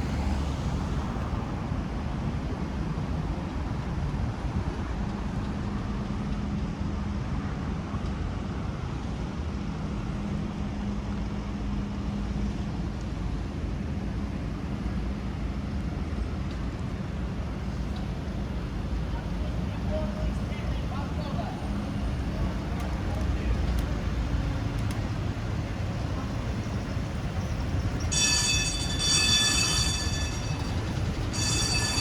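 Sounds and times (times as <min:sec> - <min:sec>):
cars passing: 0:00.0 - 0:04.8, 0:16.7 - 0:32.0
low engine hum: 0:00.0 - 0:28.1.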